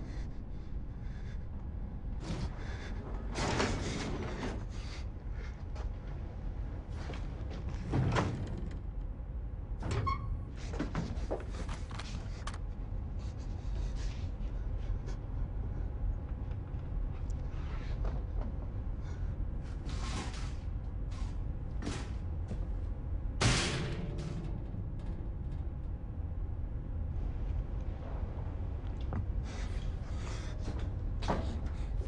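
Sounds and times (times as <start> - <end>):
machinery low rumble: 0.0 - 32.0.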